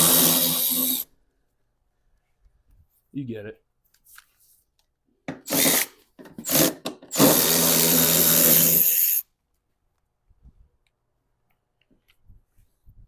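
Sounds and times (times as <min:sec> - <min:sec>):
power tool motor running: 0:00.0 - 0:01.0, 0:05.5 - 0:09.2.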